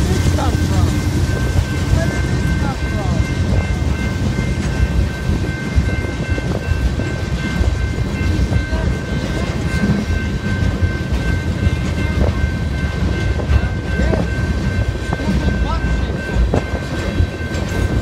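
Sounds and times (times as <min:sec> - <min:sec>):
steel wheels clattering on rails: 0:00.0 - 0:18.0.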